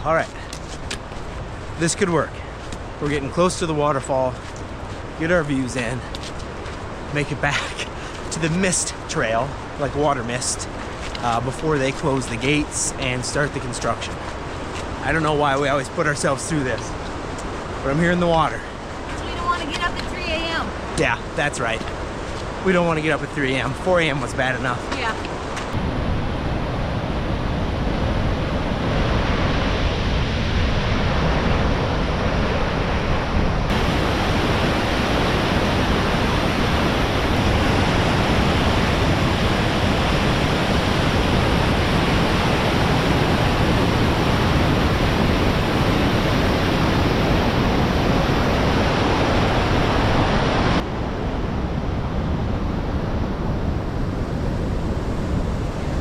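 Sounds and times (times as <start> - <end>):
waterfall rushing: 33.7 - 50.8.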